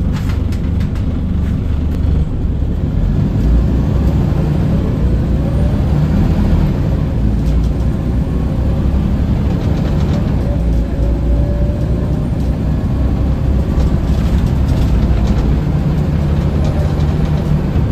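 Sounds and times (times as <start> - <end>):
bus engine rumble: 0.0 - 17.9
light rattles: 12.0 - 17.9.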